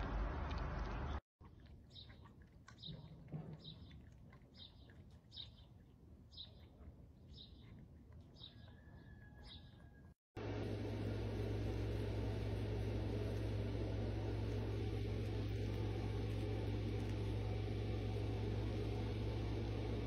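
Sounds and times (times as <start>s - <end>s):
small bird chirping: 1.9s - 10.0s.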